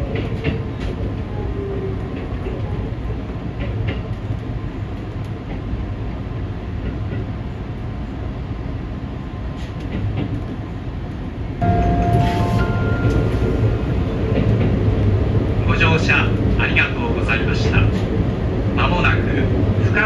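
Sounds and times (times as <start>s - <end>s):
train rumble inside carriage: 0.0s - 20.0s.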